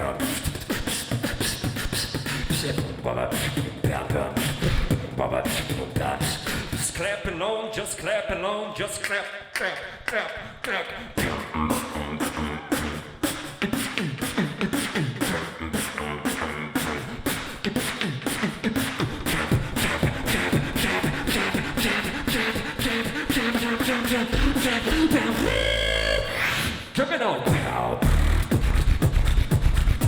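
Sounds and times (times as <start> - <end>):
person beatboxing: 0.0 - 30.0
deep bass hum: 27.5 - 30.0.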